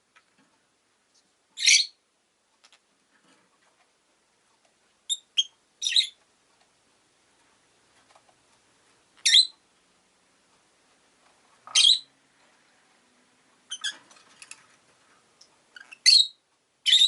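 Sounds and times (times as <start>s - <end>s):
lovebird shrill calls: 1.6s - 2.0s, 5.1s - 6.2s, 9.2s - 9.5s, 11.7s - 12.1s, 13.7s - 14.0s, 15.8s - 17.0s.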